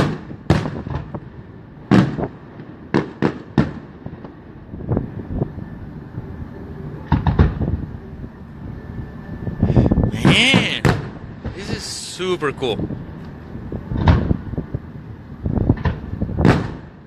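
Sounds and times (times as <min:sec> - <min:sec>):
fireworks bangs: 0:10.1 - 0:12.8.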